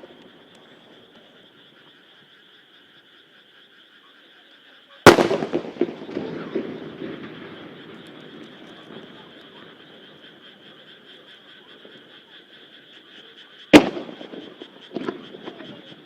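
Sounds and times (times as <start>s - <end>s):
frogs croaking: 0.0s - 16.0s
firework bang: 5.1s - 9.0s, 13.8s - 15.7s
rolling echo: 5.1s - 11.1s, 13.8s - 16.0s.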